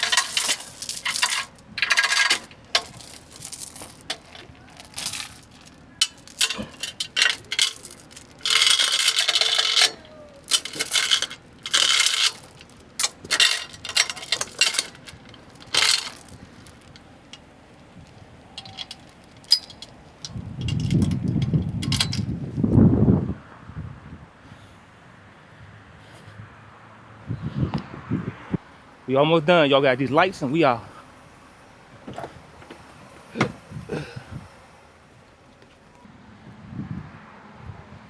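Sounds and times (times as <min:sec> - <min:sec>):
metal clinks: 0:00.0 - 0:22.3
metallic rattling scrapes: 0:00.0 - 0:22.4.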